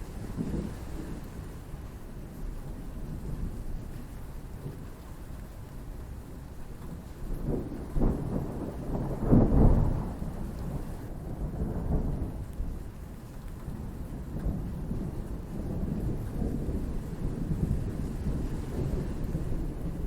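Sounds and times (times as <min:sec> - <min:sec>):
steady rain: 0:00.0 - 0:20.0
thunder rumbling: 0:07.3 - 0:12.6, 0:13.8 - 0:20.0.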